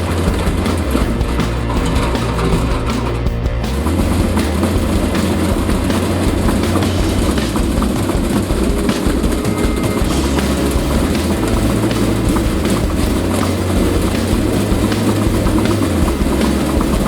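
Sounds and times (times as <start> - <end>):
washing machine drum spinning: 3.9 - 17.0.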